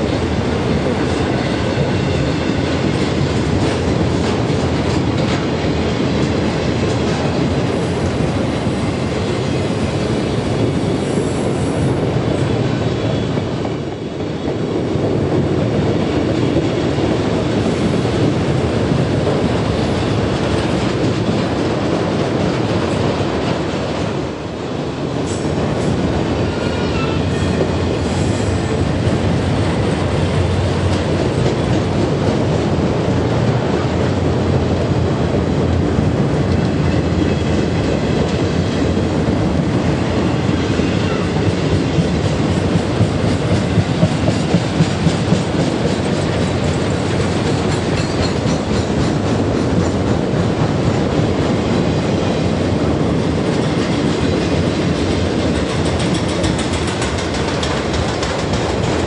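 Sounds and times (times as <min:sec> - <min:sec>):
train rumbling past: 0:00.0 - 0:59.0
wheels clacking over rail joints: 0:39.9 - 0:59.0.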